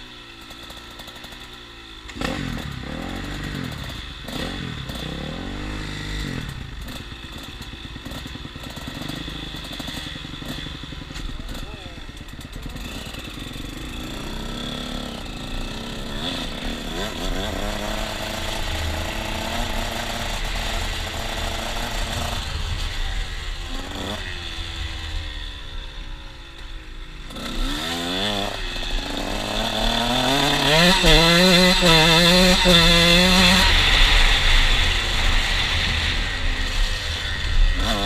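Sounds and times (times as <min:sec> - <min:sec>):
motocross engine revving: 0:00.0 - 0:38.0.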